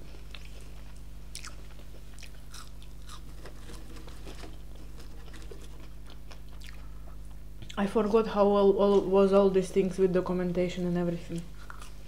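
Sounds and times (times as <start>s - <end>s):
steady low hum: 0.0s - 12.0s
chewing and biting fries: 0.1s - 7.8s, 11.6s - 12.0s.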